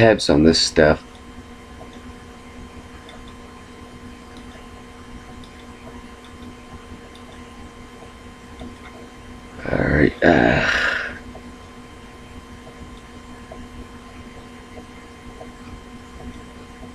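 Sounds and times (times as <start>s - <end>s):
low electrical hum: 0.0s - 16.9s
faint ticks: 1.0s - 2.1s, 3.0s - 3.5s, 4.3s - 9.1s.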